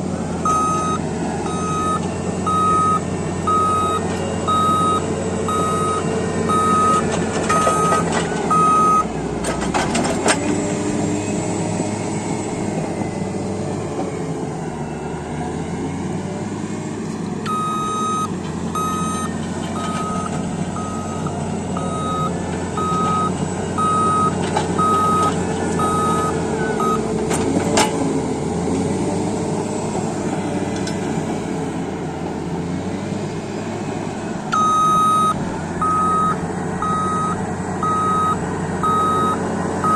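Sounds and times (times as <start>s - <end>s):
diesel engine running: 0.0s - 39.9s
reversing alarm beeping: 0.4s - 9.1s, 17.5s - 27.1s, 34.5s - 39.9s.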